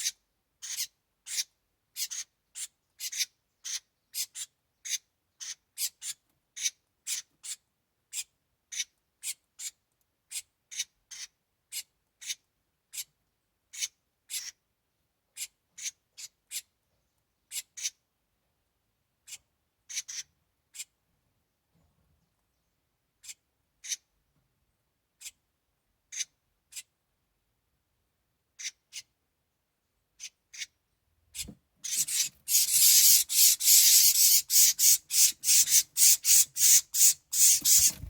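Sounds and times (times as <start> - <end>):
wren calling raspy notes: 31.4 - 38.0.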